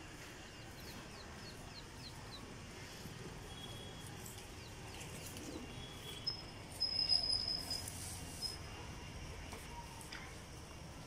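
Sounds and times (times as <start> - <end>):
faint steady background noise: 0.0 - 11.0
small birds chirping: 0.2 - 8.6.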